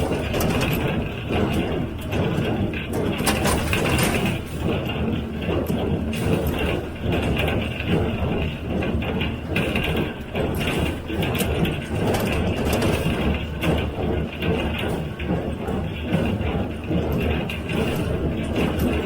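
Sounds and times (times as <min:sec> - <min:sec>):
tractor running: 0:00.0 - 0:04.8
baler mechanical clatter: 0:00.0 - 0:19.0.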